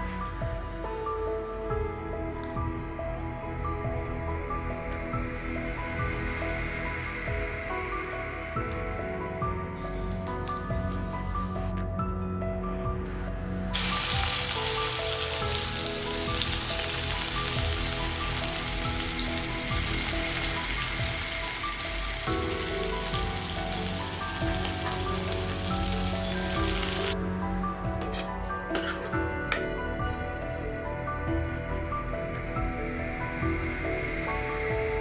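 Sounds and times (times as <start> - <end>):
food sizzling in oil: 13.8 - 27.2.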